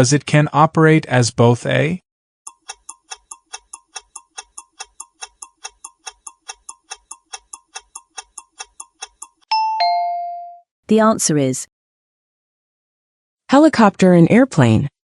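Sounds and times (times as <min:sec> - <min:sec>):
countdown timer ticking: 0:02.5 - 0:10.4
two-note chime: 0:09.5 - 0:10.6.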